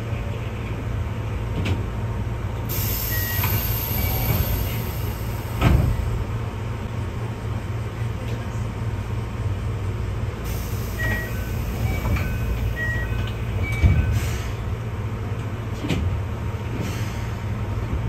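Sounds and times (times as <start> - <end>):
electric train rumbling on track: 0.0 - 18.0.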